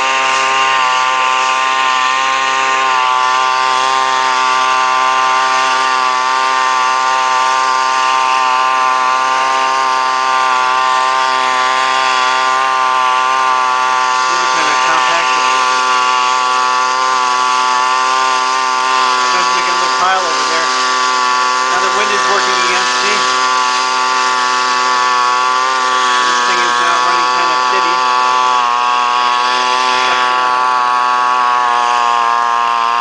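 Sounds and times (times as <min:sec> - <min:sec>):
leaf blower engine running: 0:00.0 - 0:33.0.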